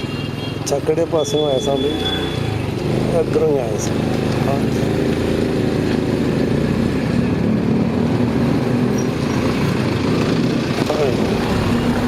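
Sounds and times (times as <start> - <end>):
motorcycle engine running: 2.6 - 12.0.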